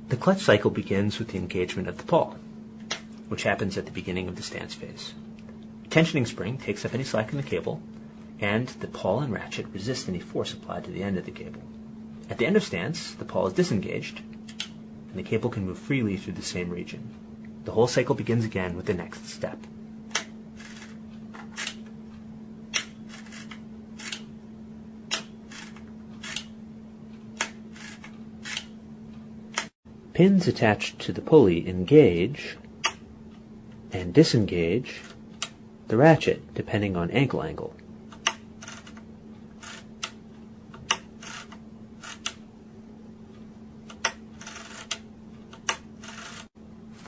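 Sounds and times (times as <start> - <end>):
steady low hum: 0.0 - 47.0
ratchet clicking: 22.7 - 24.3, 25.1 - 26.5, 27.4 - 28.7, 38.1 - 39.0, 40.9 - 42.4, 43.9 - 46.5.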